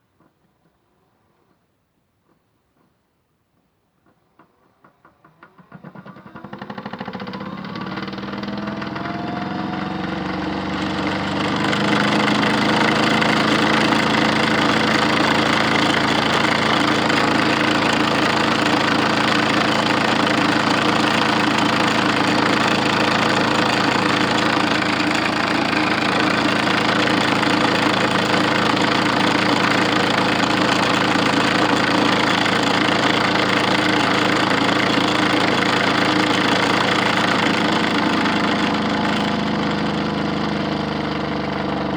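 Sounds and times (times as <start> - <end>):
small electric motor humming: 11.0 - 40.6.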